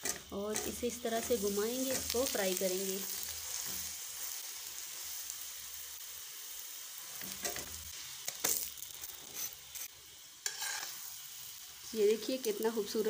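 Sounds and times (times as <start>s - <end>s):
flatbread sizzling on griddle: 0.0s - 13.0s
metal spatula scraping griddle: 7.2s - 11.2s.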